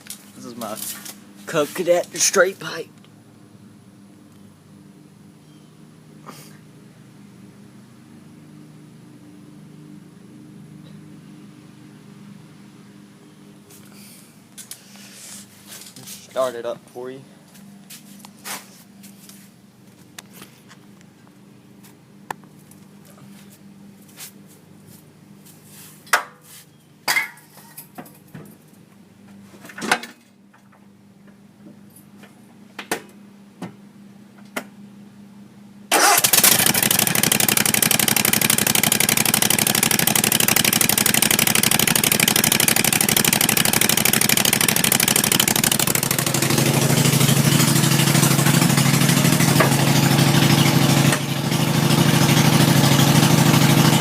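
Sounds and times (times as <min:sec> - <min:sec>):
mower engine running loud: 0:35.9 - 0:54.0.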